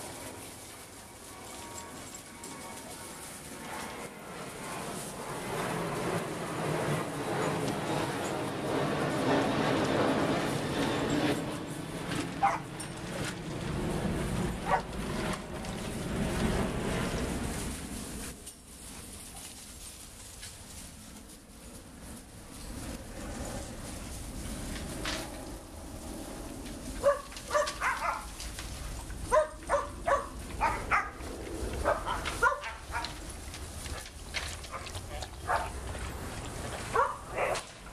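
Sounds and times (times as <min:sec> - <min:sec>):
steady background noise: 0:00.0 - 0:37.9
dog barking: 0:12.4 - 0:12.7, 0:14.6 - 0:14.9, 0:27.0 - 0:28.3, 0:29.3 - 0:31.2, 0:31.8 - 0:33.2, 0:34.7 - 0:35.7, 0:36.9 - 0:37.6.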